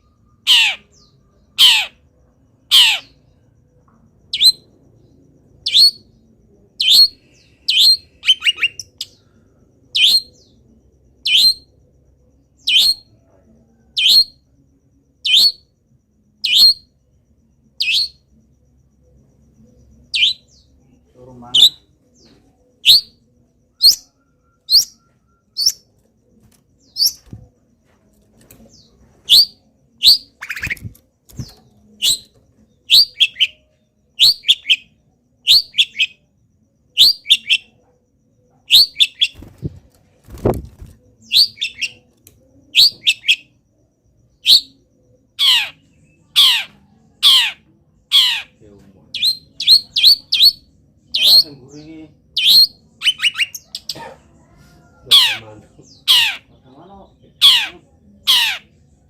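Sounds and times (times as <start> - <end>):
shrike singing falling calls: 4.2 - 11.8, 19.8 - 25.9.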